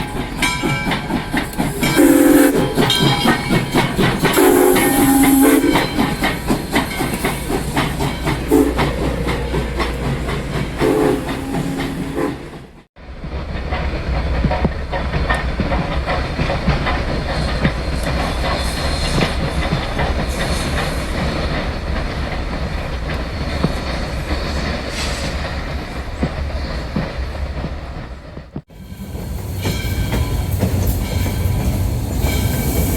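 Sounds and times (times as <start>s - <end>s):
train rumbling past: 0.0s - 32.9s
wheels clattering over rail joints: 0.0s - 32.9s
train whistle: 1.8s - 3.3s, 4.2s - 6.2s, 8.4s - 12.6s.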